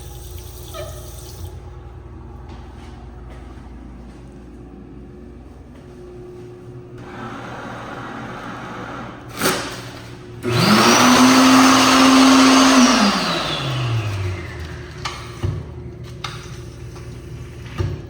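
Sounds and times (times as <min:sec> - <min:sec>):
electric hand dryer running: 0:07.0 - 0:18.0.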